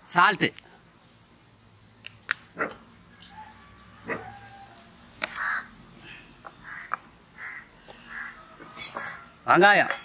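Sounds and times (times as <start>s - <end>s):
birds harsh calls: 2.0s - 9.7s.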